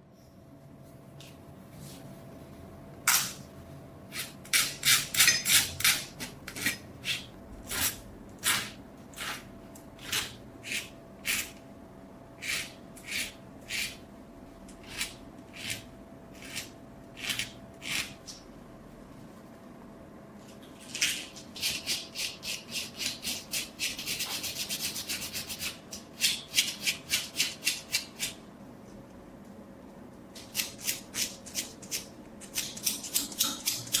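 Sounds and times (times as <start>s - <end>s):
tool scraping steel: 4.1s - 11.6s.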